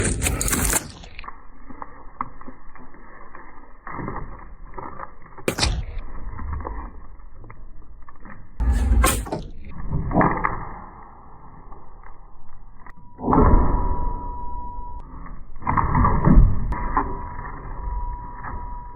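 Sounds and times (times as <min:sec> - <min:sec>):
drywall crunching and scraping: 0:00.0 - 0:07.1.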